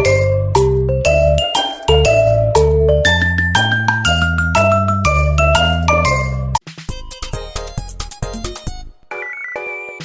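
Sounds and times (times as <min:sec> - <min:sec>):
bass notes: 0:00.0 - 0:06.6
mallet percussion melody: 0:00.0 - 0:06.6.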